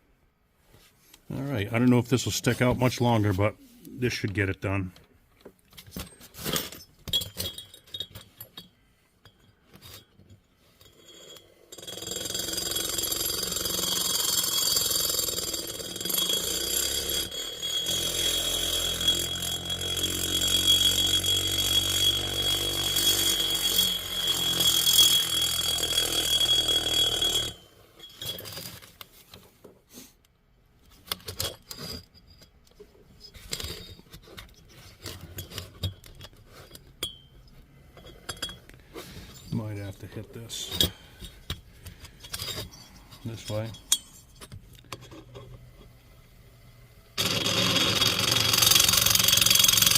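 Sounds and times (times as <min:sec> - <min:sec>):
rotary grinder whining: 0:11.1 - 0:27.7, 0:47.1 - 0:49.9.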